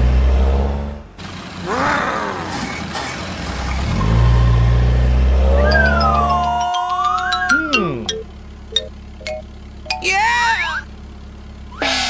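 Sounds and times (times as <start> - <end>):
cartoon car engine drone: 0.0 - 12.0
vocal ooh: 1.6 - 2.8, 5.6 - 8.2.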